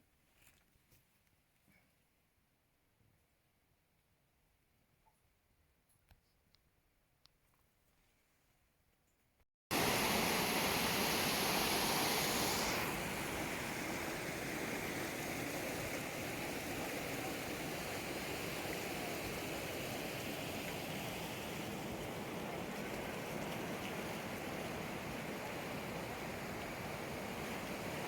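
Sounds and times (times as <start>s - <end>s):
water rushing: 9.7s - 28.0s.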